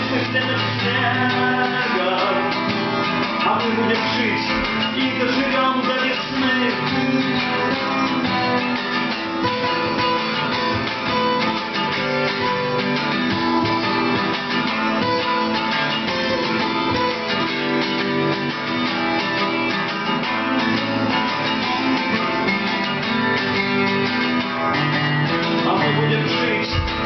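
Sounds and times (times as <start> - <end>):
acoustic guitars playing: 0.0 - 27.0.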